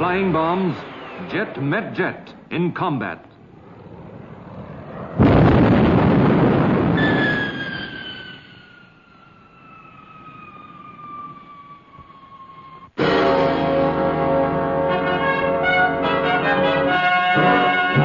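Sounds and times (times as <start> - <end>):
loud explosion: 0.0 - 2.3, 3.5 - 9.0
high jet whine: 0.0 - 6.1, 7.0 - 18.0.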